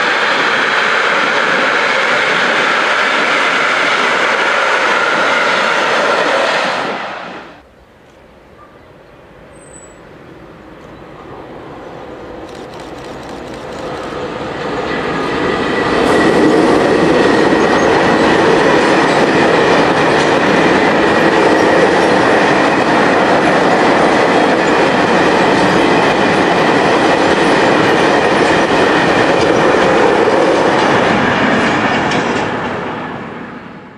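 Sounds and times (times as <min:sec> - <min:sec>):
train passing: 0:00.0 - 0:33.9.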